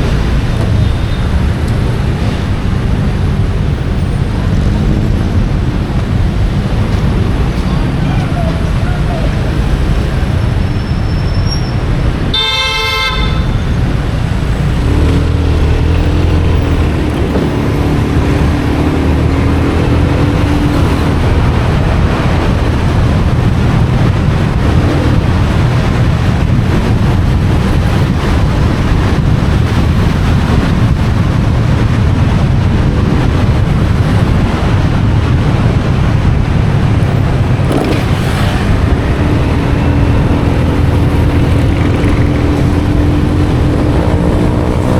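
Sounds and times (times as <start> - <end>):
motorcycle engine and road noise: 0.0 - 44.9
vehicle horn tooting: 12.3 - 13.8.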